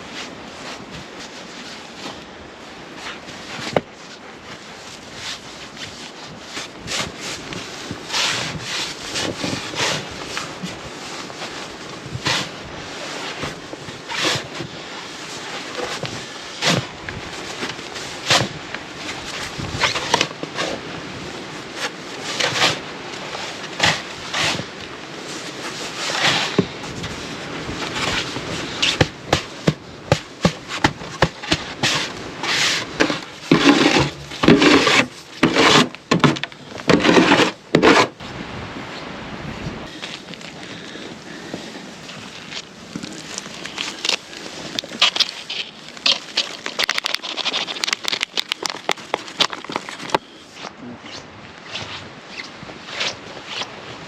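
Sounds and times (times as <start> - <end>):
wood knocking and scraping: 25.6 - 38.2, 41.5 - 50.2.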